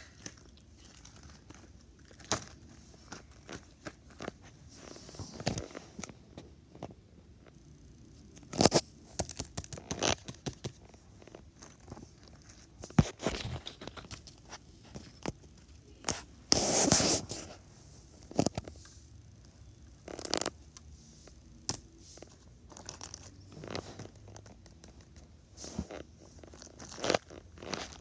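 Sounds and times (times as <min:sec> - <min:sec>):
handling clicks and scratches: 0:20.0 - 0:28.0.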